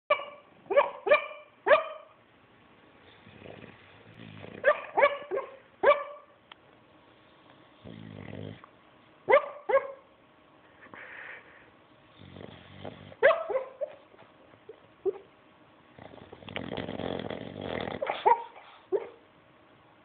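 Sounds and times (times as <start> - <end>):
dog snoring: 3.0 - 4.7, 7.7 - 8.7, 12.1 - 13.2, 15.9 - 18.2.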